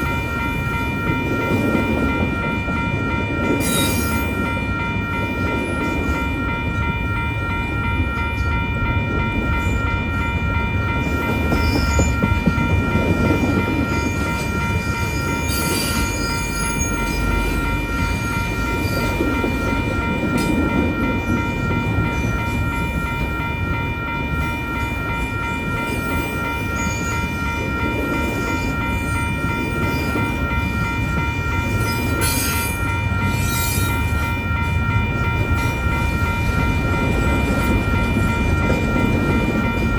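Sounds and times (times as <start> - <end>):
crossing signal ringing: 0.0 - 39.9
train wheels rumbling on rail: 0.0 - 39.9.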